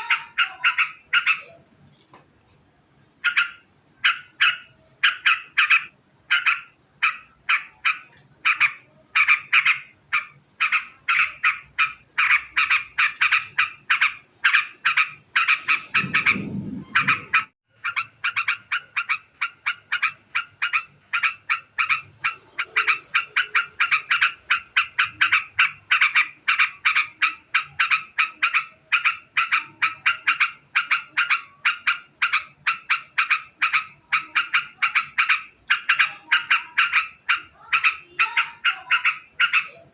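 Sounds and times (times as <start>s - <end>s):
bird chattering call: 0.0s - 1.6s, 3.2s - 39.9s
low rumble: 15.8s - 17.5s.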